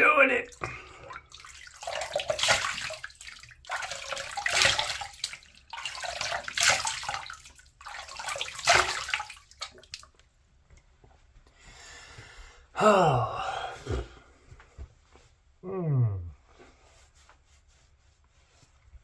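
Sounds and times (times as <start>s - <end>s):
water splashing: 0.0s - 10.1s.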